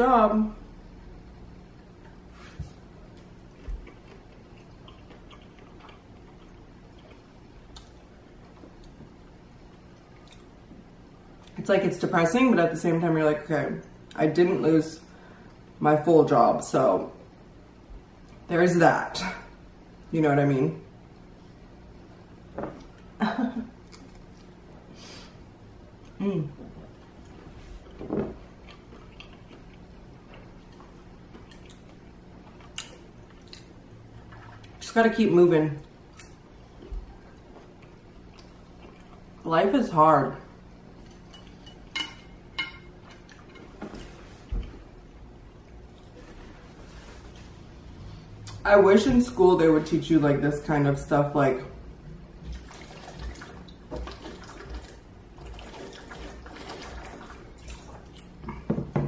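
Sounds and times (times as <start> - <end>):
faint chewing: 3.1 - 9.1, 28.6 - 34.8.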